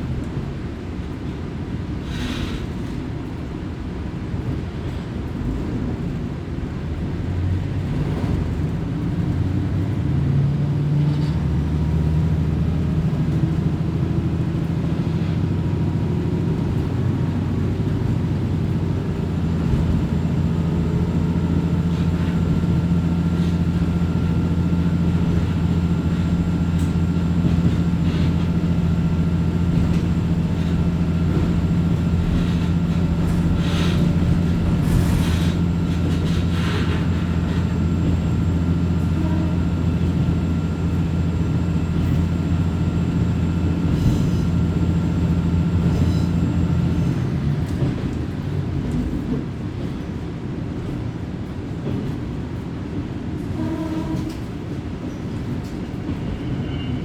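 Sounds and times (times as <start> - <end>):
wheel and rail noise: 4.9 - 57.0
diesel engine drone: 5.3 - 50.5.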